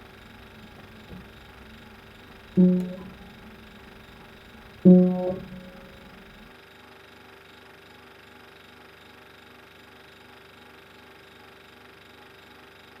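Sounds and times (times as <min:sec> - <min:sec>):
faint hum with hiss: 0:00.0 - 0:06.5
low steady tones: 0:00.0 - 0:06.5
plucked string chord: 0:00.0 - 0:06.5.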